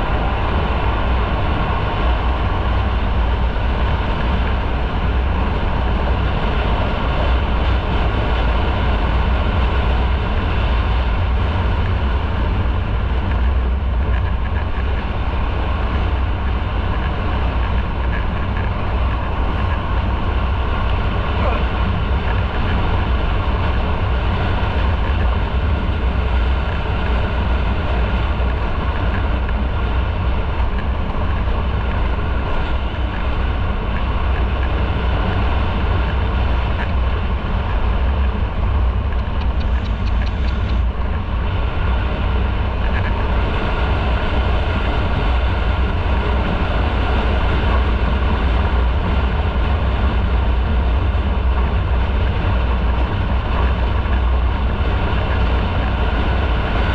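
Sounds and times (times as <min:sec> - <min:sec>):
wind rushing over microphone: 0:00.0 - 0:56.9
motorcycle engine rumbling: 0:10.2 - 0:46.6.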